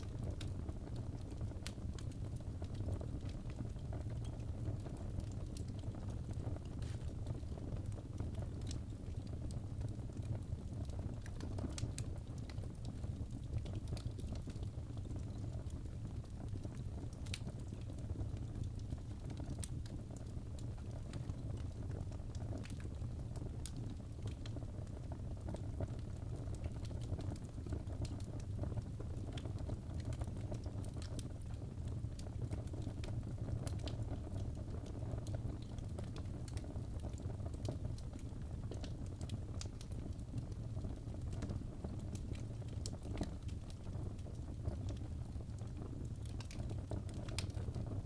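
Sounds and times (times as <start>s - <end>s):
fire crackling and popping: 0.0s - 48.0s
fire low rumble: 0.0s - 48.0s.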